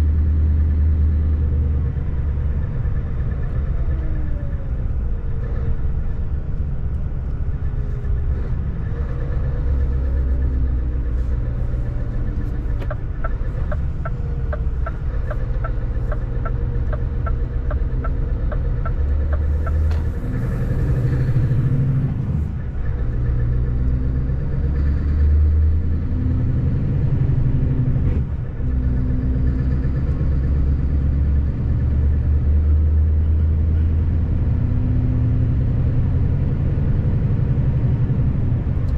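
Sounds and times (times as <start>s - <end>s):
truck diesel engine running: 0.0s - 38.9s
turn signal ticking: 9.1s - 21.4s.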